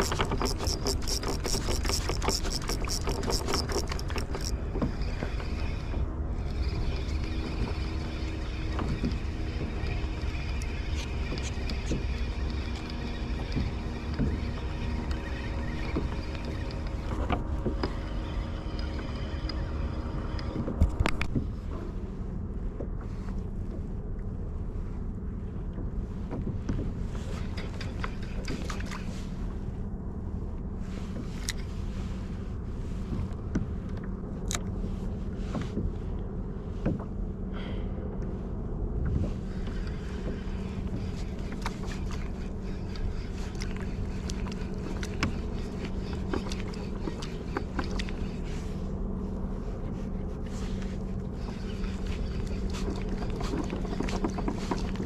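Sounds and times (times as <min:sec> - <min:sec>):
gear clicks and knocks: 0:00.0 - 0:21.6, 0:25.7 - 0:29.2, 0:39.0 - 0:49.1, 0:49.8 - 0:55.0
water noise: 0:00.0 - 0:24.0, 0:38.6 - 0:55.0
steady low hum: 0:00.0 - 0:55.0.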